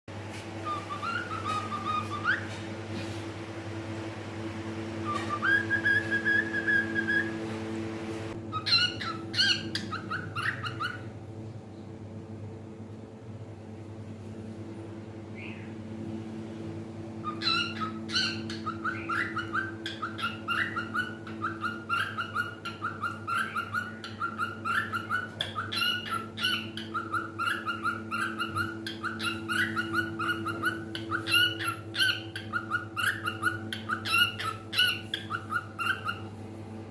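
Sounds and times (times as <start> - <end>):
cockatiel chirping: 0.6 - 2.5, 5.0 - 7.4, 8.5 - 11.1, 17.2 - 36.4.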